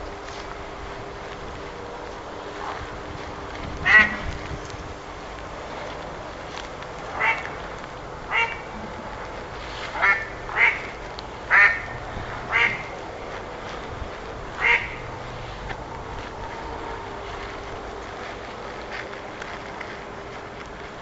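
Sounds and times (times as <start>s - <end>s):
ducks quacking: 3.8s - 4.3s, 7.1s - 7.6s, 8.3s - 8.8s, 9.9s - 13.0s, 14.6s - 15.0s.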